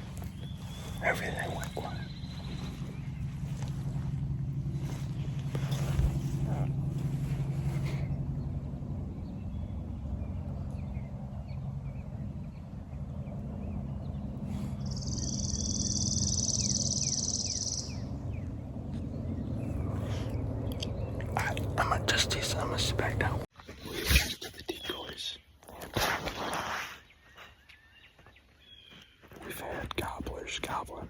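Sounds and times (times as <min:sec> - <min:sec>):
songbird trill: 0:00.0 - 0:04.2, 0:04.8 - 0:21.4
distant road traffic hum: 0:00.0 - 0:23.5.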